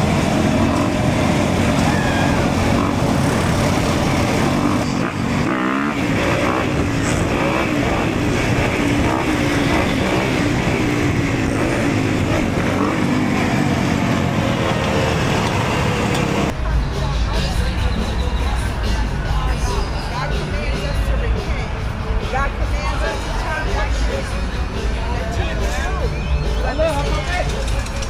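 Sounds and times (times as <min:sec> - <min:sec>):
dirt bike engine running: 0:00.0 - 0:16.5.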